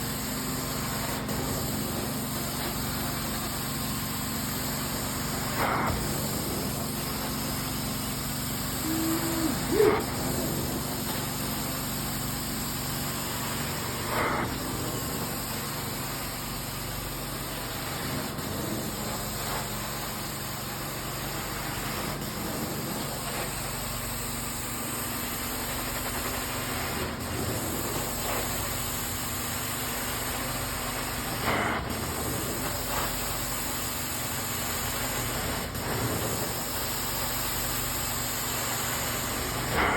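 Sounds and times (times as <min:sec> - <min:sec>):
carpet cleaning machine humming: 0:00.0 - 0:39.9
short louder noises: 0:08.8 - 0:10.1.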